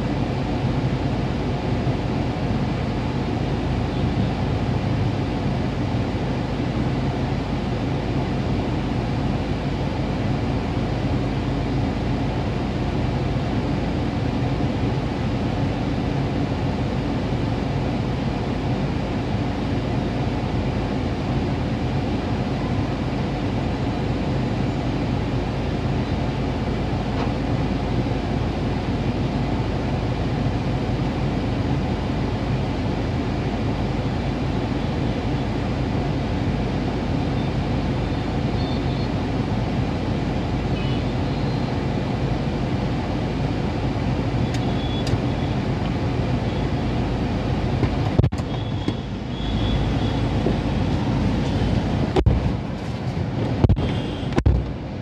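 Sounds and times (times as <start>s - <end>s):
car cabin hum: 44.5s - 55.0s.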